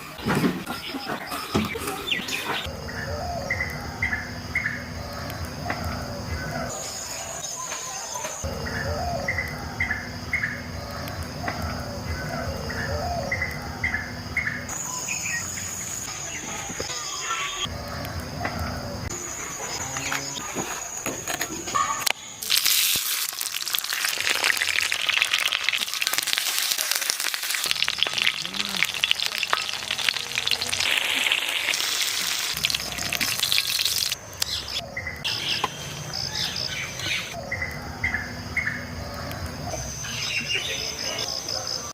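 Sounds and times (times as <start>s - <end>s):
food sizzling in hot oil: 22.4s - 34.2s.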